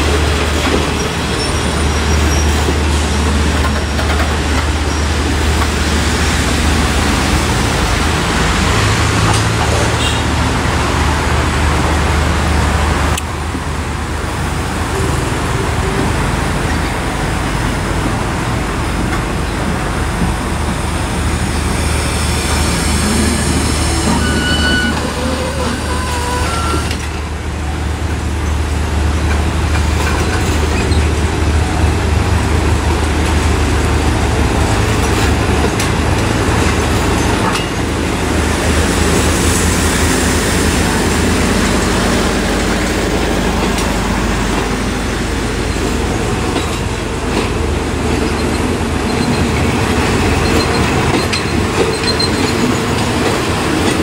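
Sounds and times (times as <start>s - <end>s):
train approaching: 0.0s - 54.0s
train carriages rumbling on rails: 0.0s - 54.0s
wheel squeals: 23.0s - 27.1s, 50.4s - 52.9s.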